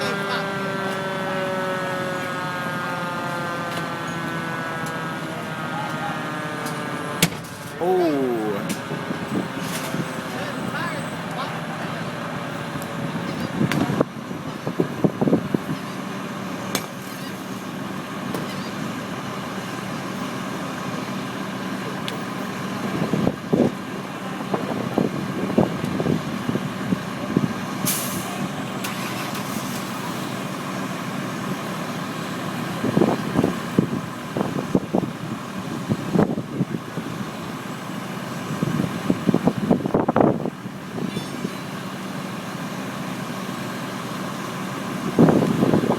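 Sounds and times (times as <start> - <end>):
loud engine bursts: 28.8 - 30.2.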